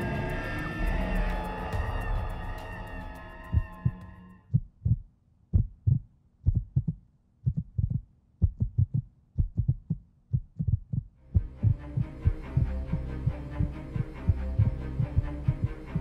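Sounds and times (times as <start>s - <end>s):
heartbeat-style low thumps: 3.4s - 16.0s.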